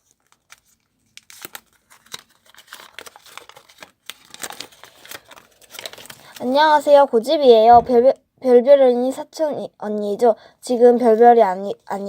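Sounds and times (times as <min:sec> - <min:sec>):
wrapping paper crinkling and tearing: 0:00.0 - 0:07.0.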